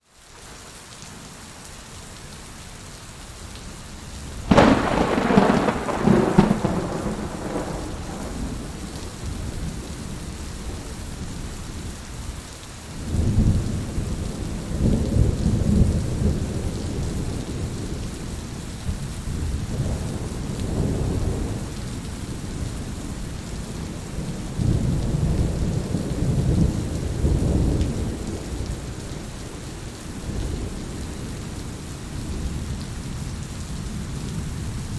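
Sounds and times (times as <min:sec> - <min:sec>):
steady rain: 0:00.0 - 0:34.9
low rolling thunder: 0:04.4 - 0:12.3, 0:13.0 - 0:34.9
sharp thunderclap: 0:04.5 - 0:09.7.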